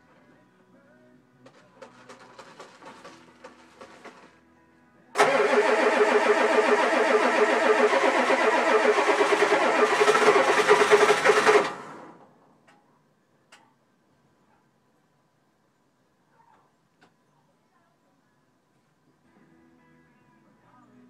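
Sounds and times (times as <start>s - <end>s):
diesel engine cranking: 5.2s - 12.2s.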